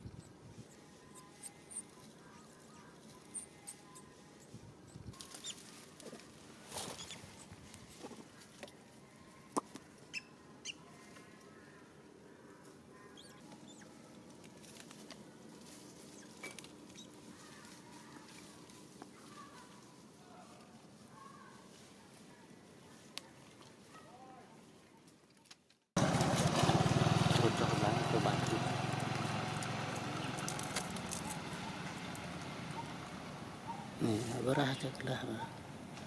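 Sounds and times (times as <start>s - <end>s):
rustles: 0.0s - 10.2s, 12.4s - 36.0s.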